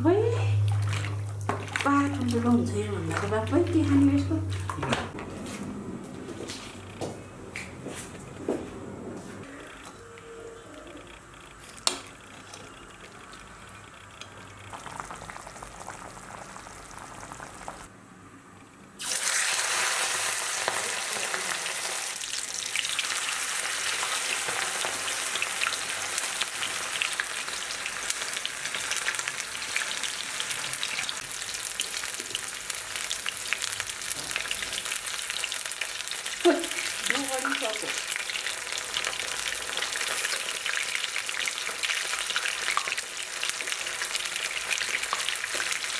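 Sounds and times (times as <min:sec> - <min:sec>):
meat sizzling in hot oil: 0:19.0 - 0:45.9.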